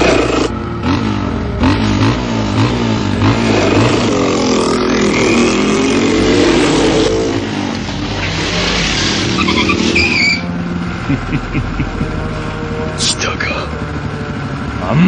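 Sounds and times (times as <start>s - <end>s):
vehicle engine revving: 0.0s - 15.0s
high tyre squeal: 4.8s - 10.6s.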